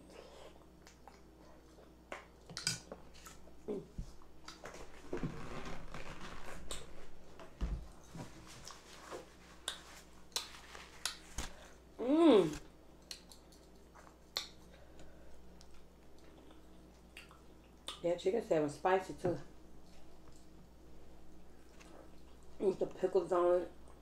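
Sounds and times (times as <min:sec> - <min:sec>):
wet chewing with mouth clicks: 0:00.5 - 0:03.6, 0:04.2 - 0:04.8, 0:08.6 - 0:11.3, 0:13.0 - 0:18.0.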